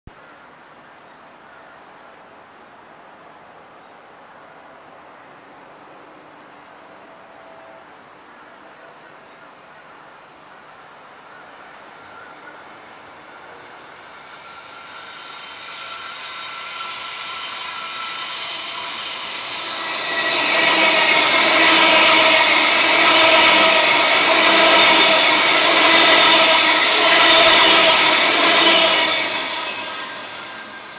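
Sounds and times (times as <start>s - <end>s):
train wheels on rails: 11.6s - 30.9s
train motor whine: 13.3s - 30.9s.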